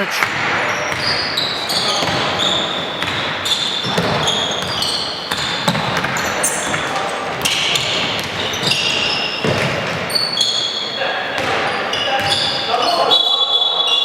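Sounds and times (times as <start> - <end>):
basketball bouncing: 0.0 - 13.2
hall background noise: 0.0 - 14.0
shoes squeaking on court floor: 0.0 - 14.0.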